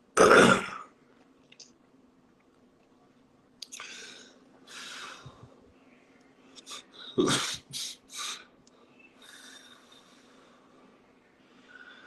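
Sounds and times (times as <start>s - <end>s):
short noisy breaths: 3.8s - 5.6s, 6.6s - 12.0s.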